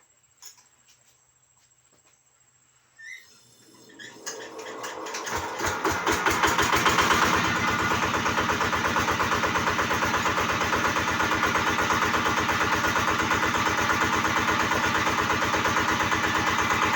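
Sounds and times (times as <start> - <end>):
single-cylinder diesel engine running: 3.9 - 16.9.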